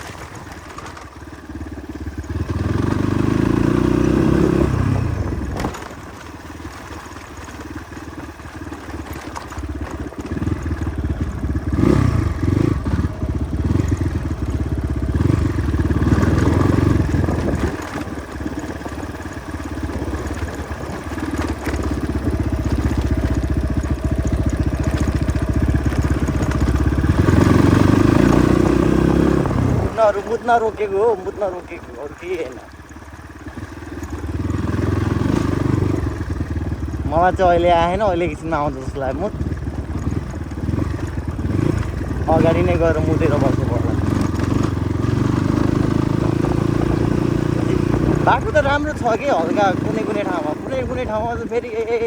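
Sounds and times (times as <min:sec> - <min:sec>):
motorcycle engine revving: 0:00.0 - 0:52.0
knocks from bumpy ride: 0:05.4 - 0:07.7.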